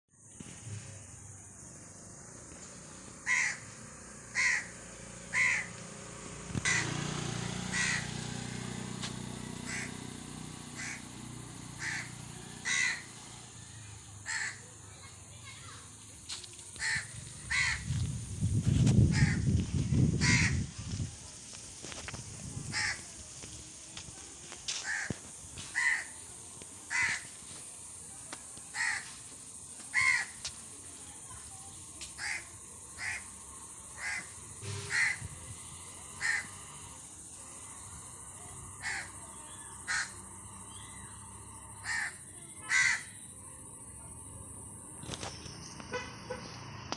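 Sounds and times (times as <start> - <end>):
crow cawing: 3.2 - 5.8, 6.6 - 7.0, 7.6 - 8.2, 9.6 - 10.0, 10.8 - 11.0, 11.8 - 13.1, 14.2 - 14.7, 16.8 - 17.9, 19.1 - 19.5, 20.2 - 20.6, 22.7 - 23.0, 24.8 - 25.1, 25.7 - 26.2, 26.9 - 27.3, 28.7 - 29.1, 29.9 - 30.4, 32.2 - 33.3, 34.0 - 35.3, 36.2 - 36.6, 38.8 - 39.2, 39.8 - 40.2, 41.8 - 43.2.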